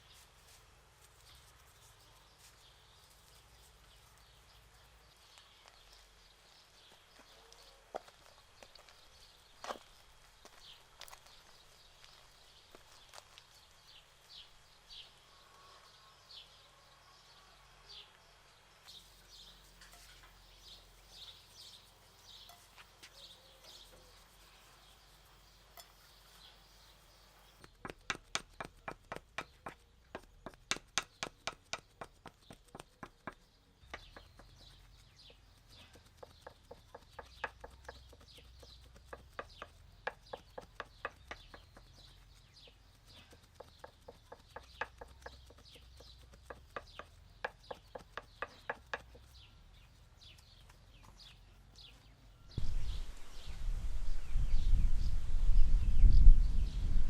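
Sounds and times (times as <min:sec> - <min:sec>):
small birds chirping: 0:00.0 - 0:57.0
sharp taps or knocks: 0:27.6 - 0:34.6.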